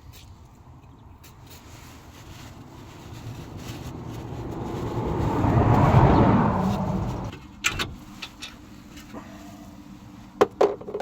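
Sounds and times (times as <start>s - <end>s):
car passing by: 2.5s - 7.3s.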